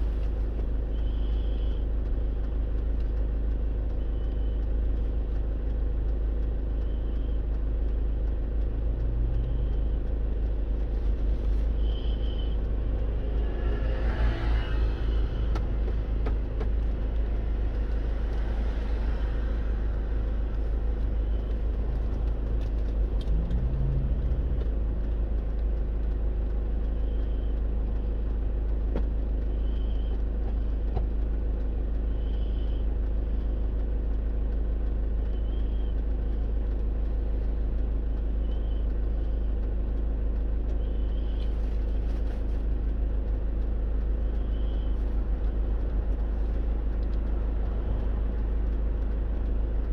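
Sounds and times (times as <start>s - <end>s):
car engine and road noise: 0.0s - 49.9s.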